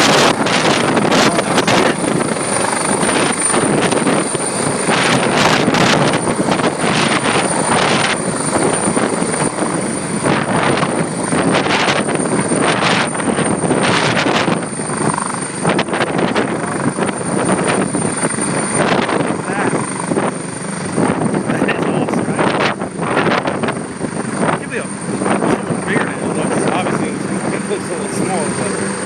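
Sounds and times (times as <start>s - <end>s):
helicopter rotor and engine: 0.0s - 29.0s.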